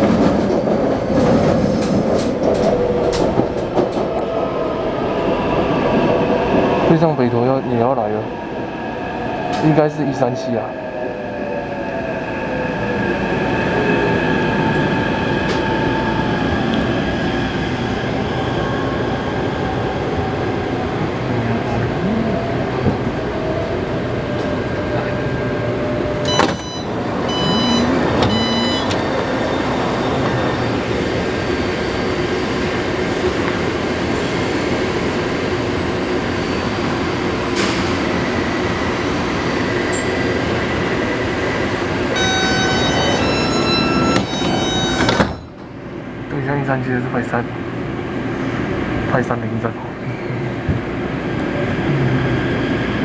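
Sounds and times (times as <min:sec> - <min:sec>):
train wheels rumbling on rail: 0:00.0 - 0:08.5
high beeping tones: 0:26.3 - 0:29.0, 0:42.2 - 0:45.5.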